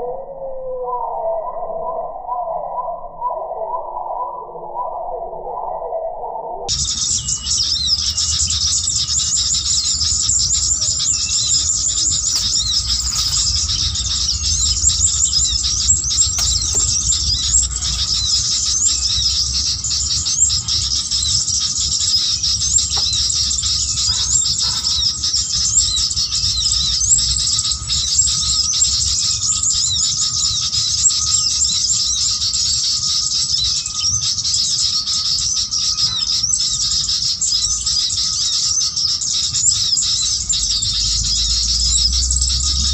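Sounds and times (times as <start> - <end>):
low rumble: 6.7 - 29.9, 40.3 - 42.9
high-pitched bird chirping: 6.7 - 42.9.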